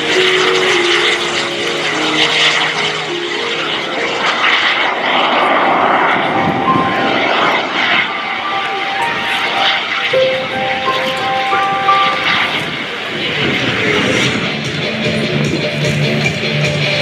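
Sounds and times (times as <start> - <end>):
small jet engine rushing: 0.0 - 17.0.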